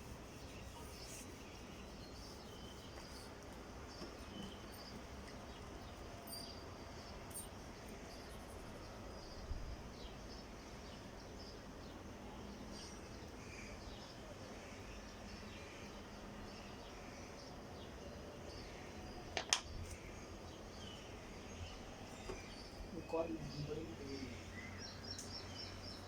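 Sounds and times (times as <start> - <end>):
faint bird chirps: 0.0 - 19.3.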